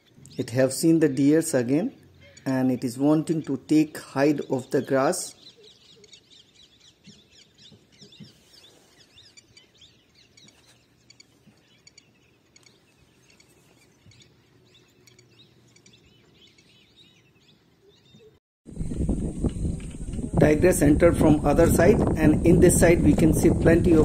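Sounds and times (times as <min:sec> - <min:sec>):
small birds chirping: 0:00.0 - 0:18.4.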